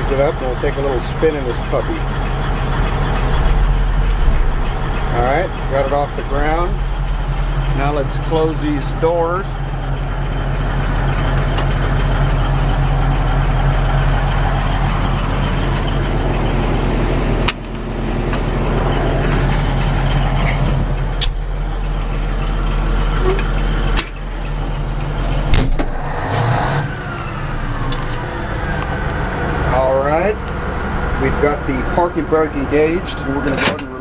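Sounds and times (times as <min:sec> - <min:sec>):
bulldozer diesel engine running: 0:00.0 - 0:34.0
sharp clunks: 0:25.5 - 0:26.9.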